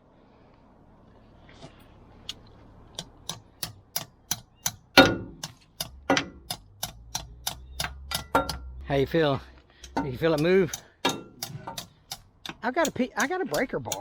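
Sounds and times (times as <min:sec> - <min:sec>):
hammer striking metal wrench: 0:03.2 - 0:08.7, 0:09.8 - 0:14.0.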